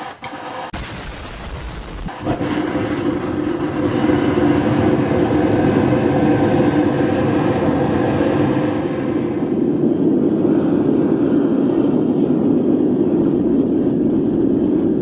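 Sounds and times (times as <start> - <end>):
gas burners roaring: 0.0 - 0.8, 2.1 - 10.3.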